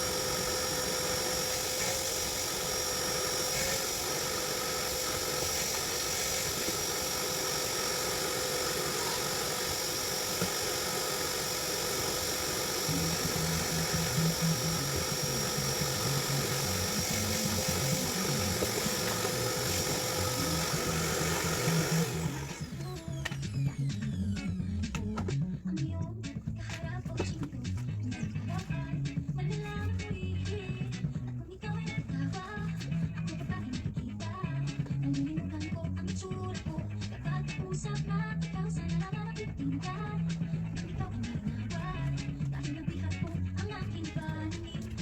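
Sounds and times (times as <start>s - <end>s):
motor whine: 0.0s - 45.0s
music with bass line: 12.8s - 45.0s.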